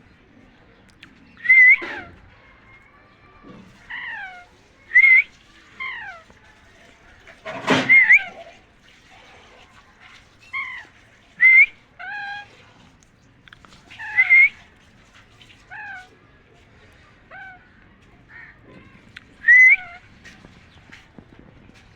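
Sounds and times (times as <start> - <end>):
parakeet whistled calls: 1.4 - 2.1, 4.3 - 6.2, 14.0 - 14.6, 19.4 - 20.0.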